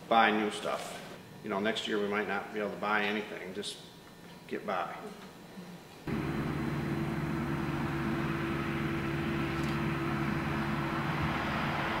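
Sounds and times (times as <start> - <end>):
engine droning steadily: 6.0 - 12.0.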